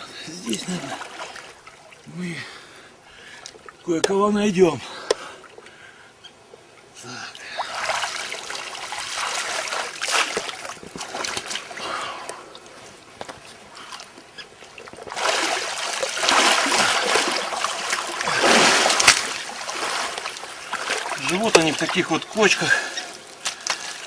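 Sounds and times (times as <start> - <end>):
shallow water splashing: 0.4 - 2.6, 7.3 - 24.0.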